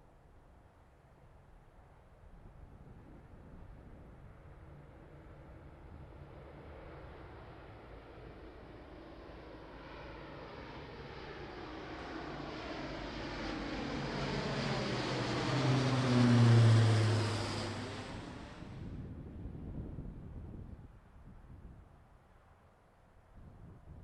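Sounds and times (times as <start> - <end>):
propeller aircraft flying past: 2.6 - 19.4.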